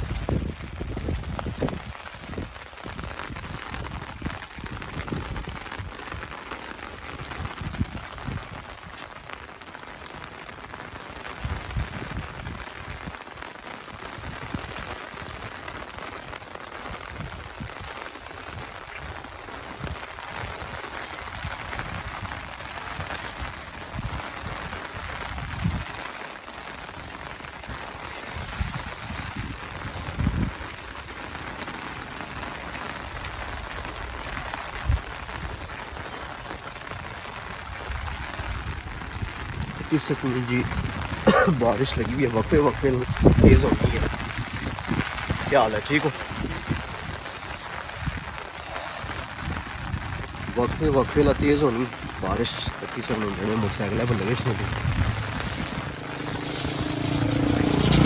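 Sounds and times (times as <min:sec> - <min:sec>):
heavy rain falling: 0:00.0 - 0:58.0
low rumbles: 0:41.8 - 0:58.0.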